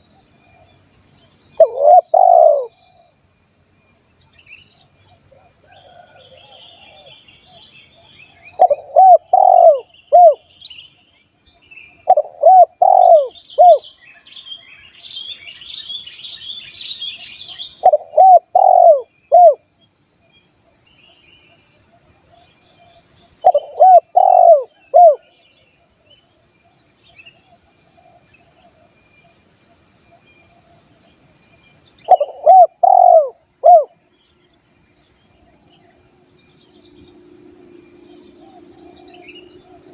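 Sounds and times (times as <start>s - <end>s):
insects droning: 0.0s - 39.9s
small birds twittering: 0.0s - 39.9s
dove cooing: 1.6s - 3.0s, 8.5s - 10.5s, 12.0s - 13.8s, 17.8s - 19.6s, 23.4s - 25.3s, 32.1s - 34.0s.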